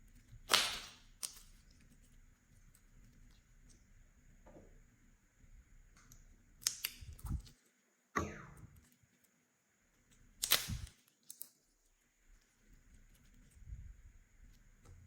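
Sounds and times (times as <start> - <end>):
slime being squeezed by hand: 0.4 - 1.4, 10.4 - 10.9
sharp pops of bursting air: 0.5 - 1.0.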